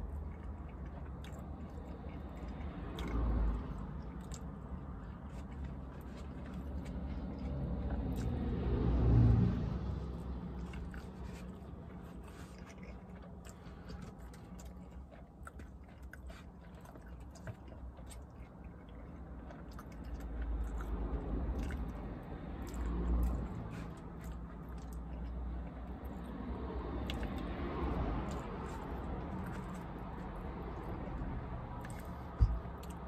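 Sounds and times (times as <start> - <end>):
person chewing food: 0.0 - 33.0
car driving past: 6.7 - 11.7.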